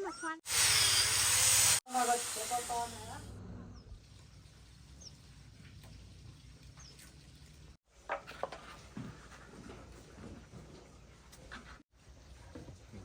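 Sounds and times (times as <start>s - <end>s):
puppies squeaking and whimpering: 0.0s - 0.4s.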